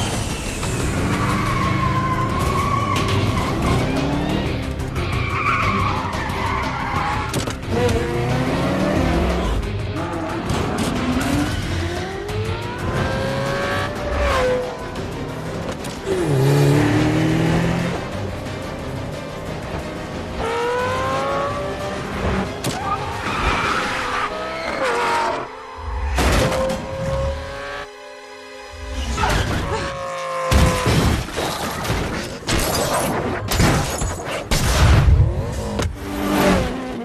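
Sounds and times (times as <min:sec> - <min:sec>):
car engines revving: 0:00.0 - 0:27.9, 0:35.1 - 0:37.0
film music score: 0:00.0 - 0:37.0
tyre squeals and skids: 0:00.1 - 0:07.6, 0:22.6 - 0:25.5.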